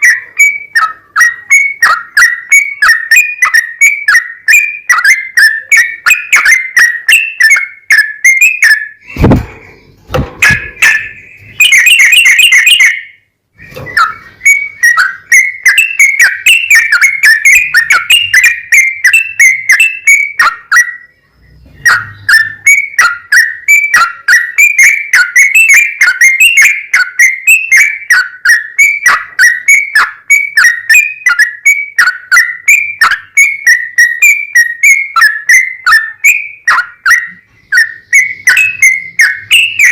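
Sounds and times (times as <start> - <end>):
bulbul chattering song: 0.0 - 39.9
sharp thumps: 9.0 - 11.2.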